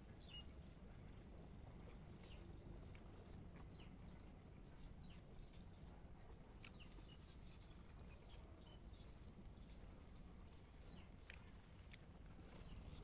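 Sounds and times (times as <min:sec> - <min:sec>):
faint bird chirps: 0:00.0 - 0:01.4
low steady background rumble: 0:00.0 - 0:13.0.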